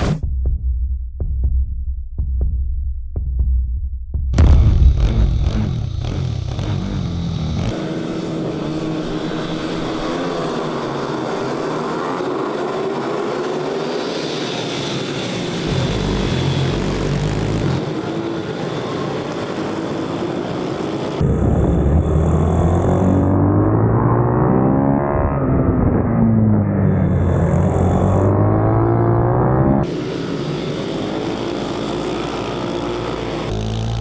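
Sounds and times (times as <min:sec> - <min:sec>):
heavier low sound: 0:04.1 - 0:10.6
pitbike engines revving: 0:05.0 - 0:34.0.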